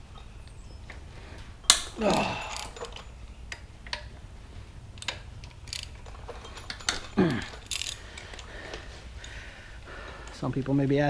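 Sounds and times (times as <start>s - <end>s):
metal clinks: 0.0s - 4.3s, 4.9s - 9.4s
ratchet wrench clicking: 1.7s - 4.1s, 5.0s - 9.4s.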